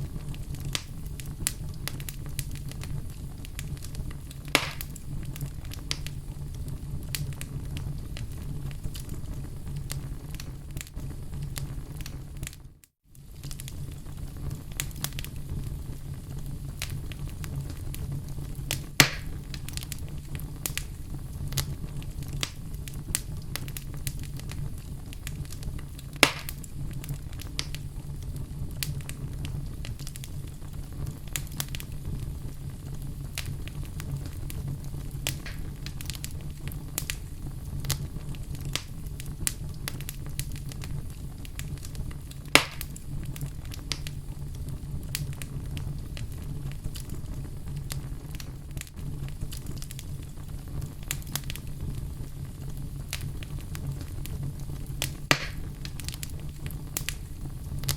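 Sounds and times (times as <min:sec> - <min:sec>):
fire low rumble: 0:00.0 - 0:57.9
loud fire pops: 0:00.0 - 0:57.9
wood fire crackling: 0:00.0 - 0:57.9.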